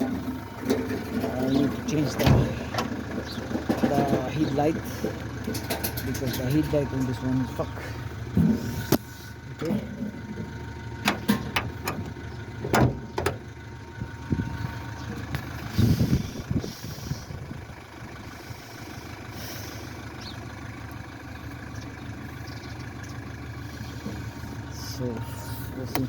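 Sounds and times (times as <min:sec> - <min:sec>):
car engine idling: 0:00.0 - 0:26.0
sharp knocks and clunks: 0:11.0 - 0:13.4.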